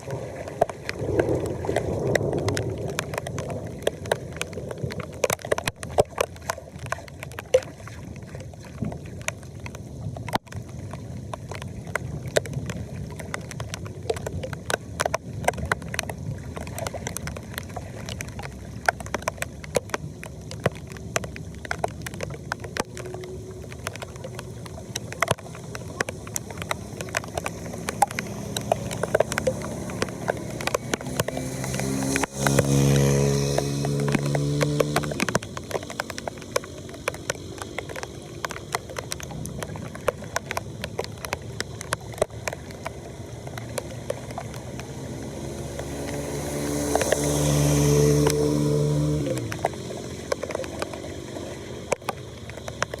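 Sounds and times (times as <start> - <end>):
floodwater rushing into a drain: 0.0 - 53.0
short water splashes: 0.0 - 53.0.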